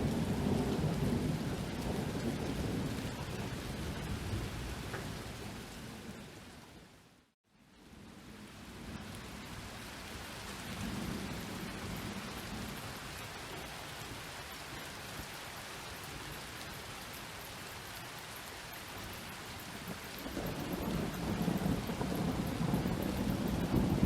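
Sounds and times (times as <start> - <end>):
rolling thunder: 0.0 - 6.2, 20.2 - 24.0
heavy rain: 0.0 - 24.0.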